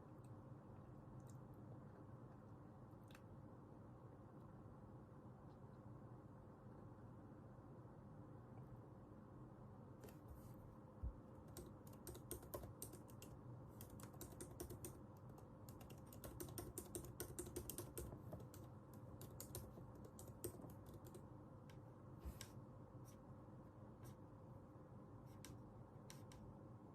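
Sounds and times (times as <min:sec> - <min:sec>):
faint steady hum: 0:00.0 - 0:26.9
typing on a keyboard: 0:11.4 - 0:21.3.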